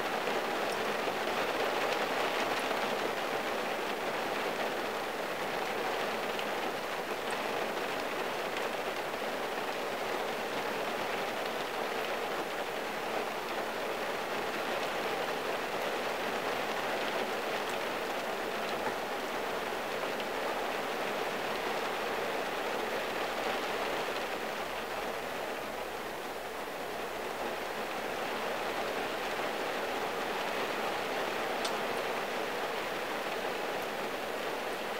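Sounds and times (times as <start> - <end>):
rain on car windshield: 0.1 - 25.8.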